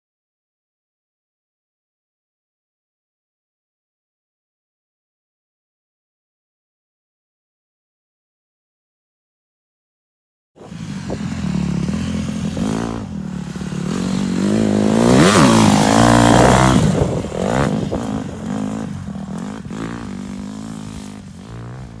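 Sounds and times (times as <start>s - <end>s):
pit bike engine revving: 10.6s - 22.0s.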